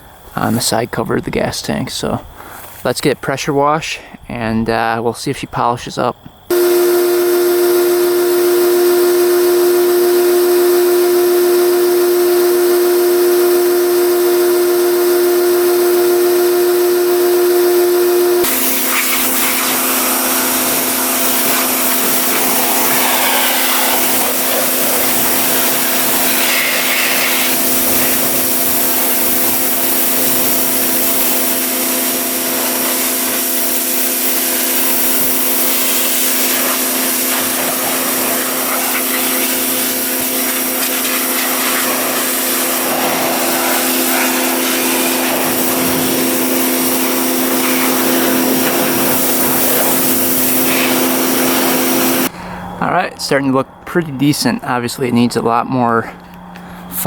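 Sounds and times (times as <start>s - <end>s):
pressure washer motor hum: 6.5s - 52.3s
water spraying hiss: 18.4s - 52.3s.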